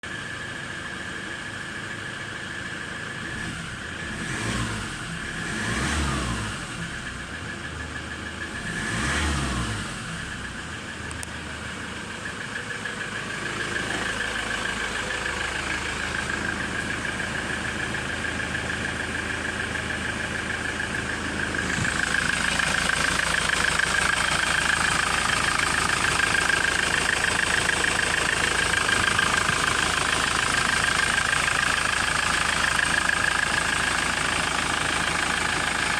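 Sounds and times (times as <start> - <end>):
van engine revving and running: 0.0 - 35.9
steady high whine: 10.1 - 35.9.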